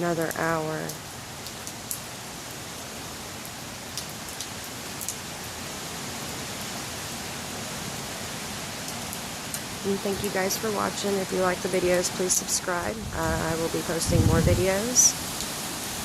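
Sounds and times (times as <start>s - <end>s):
raindrops ticking close by: 0.0s - 6.8s, 8.5s - 16.0s
steady hiss of rain: 0.0s - 16.0s.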